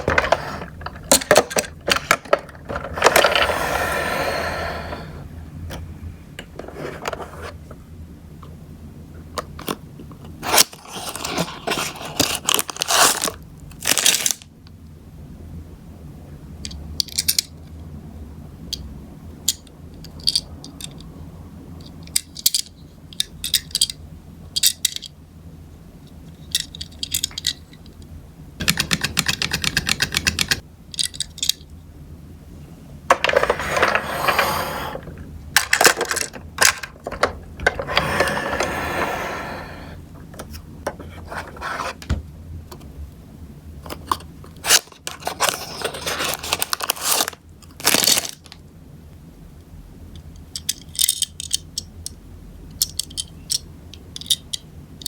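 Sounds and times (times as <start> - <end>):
rattling and scraping: 0.0 - 5.2, 33.1 - 42.2
toy cars clicking against plastic: 28.6 - 31.6, 50.4 - 54.7.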